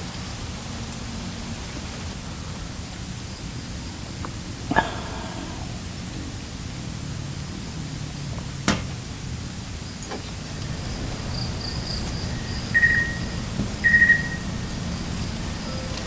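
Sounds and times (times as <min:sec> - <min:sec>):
steady background hiss: 0:09.3 - 0:16.0
short high chirps: 0:12.2 - 0:14.5.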